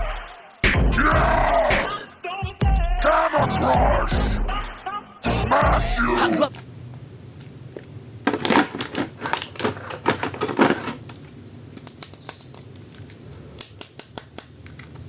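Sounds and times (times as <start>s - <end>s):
plastic toy figure clicking: 11.8s - 15.0s.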